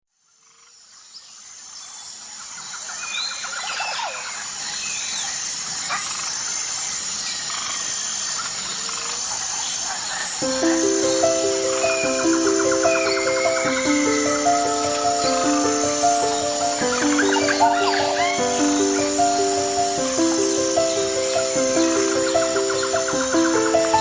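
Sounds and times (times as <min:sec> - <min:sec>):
bird calls and chirps: 0:09.4 - 0:24.0
steady hiss: 0:10.3 - 0:24.0
bird trill: 0:10.4 - 0:24.0
music notes: 0:10.4 - 0:24.0.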